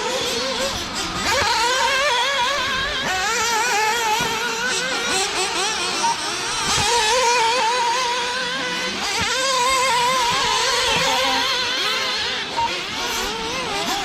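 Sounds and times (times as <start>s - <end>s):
rc buggy engines whining: 0.0s - 14.0s.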